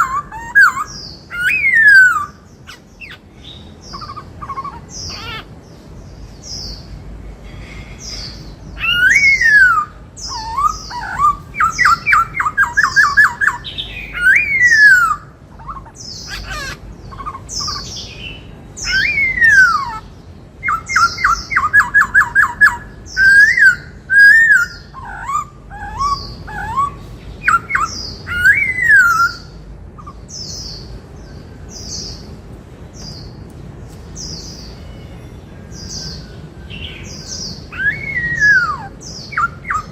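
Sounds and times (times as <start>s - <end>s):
bird singing whistled phrases: 0.0s - 5.4s, 8.8s - 20.0s, 20.6s - 30.2s, 35.9s - 39.9s
thin high bird chirps: 0.0s - 5.5s.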